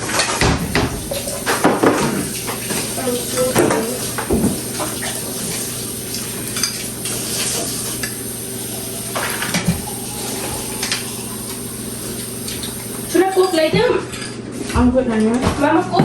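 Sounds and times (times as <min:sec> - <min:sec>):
steady low hum: 0:00.6 - 0:13.4.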